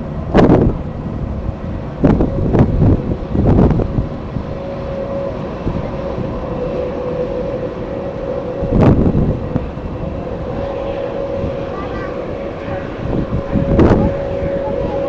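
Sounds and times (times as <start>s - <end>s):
jet engines running: 0.0s - 15.0s
wind gusts on microphone: 0.0s - 15.0s.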